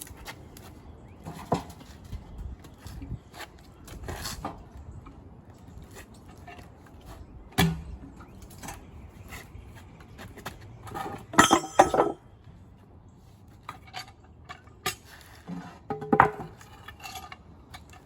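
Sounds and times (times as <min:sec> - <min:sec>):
metal clanks: 0:10.9 - 0:12.2.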